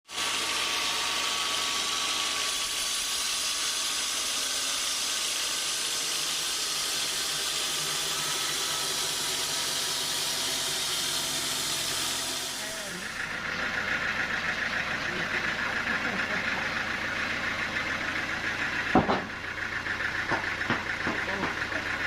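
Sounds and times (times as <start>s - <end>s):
saw blade hissing through wood: 0.0s - 13.4s
sawmill machine running: 0.0s - 22.0s.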